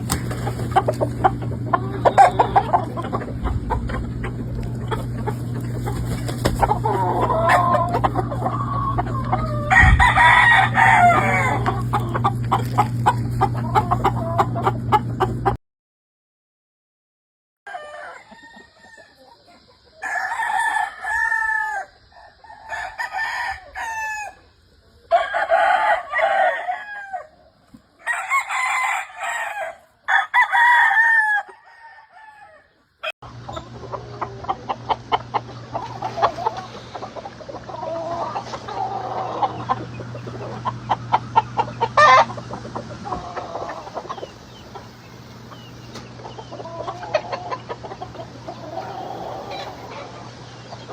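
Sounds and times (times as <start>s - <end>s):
roosters crowing: 0.0s - 15.5s, 17.7s - 50.9s
chickens clucking: 0.0s - 15.6s, 17.7s - 50.9s
steady low hum: 0.0s - 15.6s, 33.2s - 50.9s.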